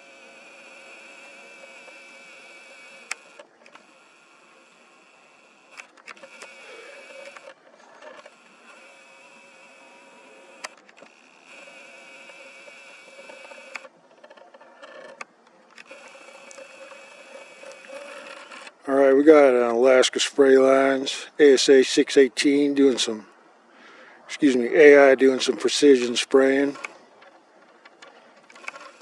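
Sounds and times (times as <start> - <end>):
camera lens motor whine: 0.0 - 19.8, 24.7 - 29.0.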